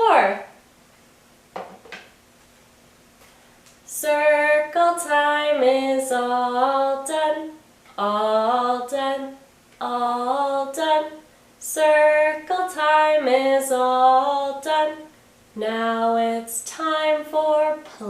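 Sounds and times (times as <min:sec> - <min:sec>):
woman singing unaccompanied: 0:00.0 - 0:00.4, 0:03.9 - 0:18.0.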